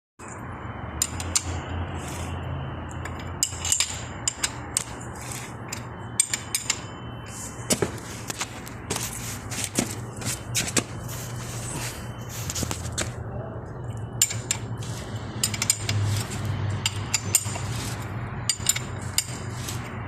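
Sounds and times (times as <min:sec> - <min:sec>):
sharp metallic clicks and knocks: 0:01.0 - 0:01.7, 0:02.9 - 0:06.9, 0:14.2 - 0:19.9.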